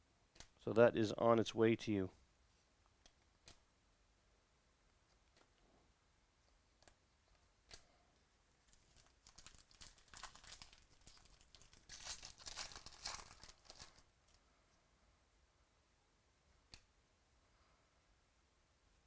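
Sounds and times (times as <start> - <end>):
foil wrapper crinkling and tearing: 8.6 - 14.0
click: 16.7 - 16.9.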